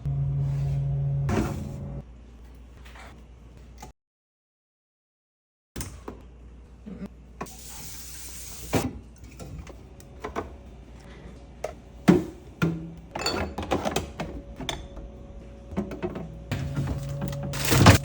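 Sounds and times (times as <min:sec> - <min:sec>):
water running or spraying: 0:07.5 - 0:08.8.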